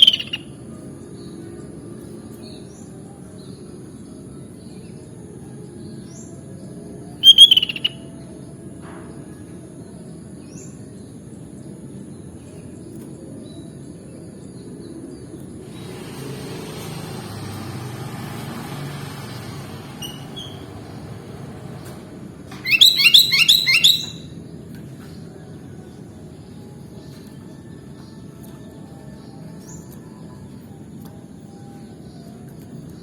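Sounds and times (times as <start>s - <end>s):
faint short bird chirps: 0.0s - 0.4s, 7.2s - 8.0s, 22.6s - 24.3s.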